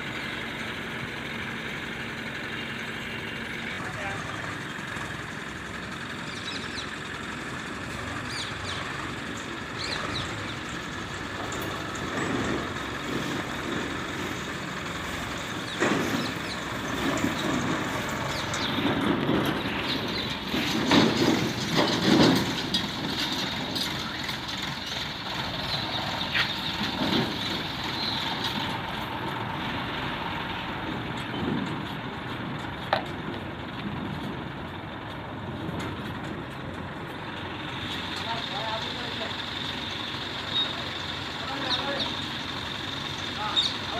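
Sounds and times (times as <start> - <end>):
heavy diesel machinery running: 0.0 - 43.9
loud knocks and thuds: 18.8 - 22.8.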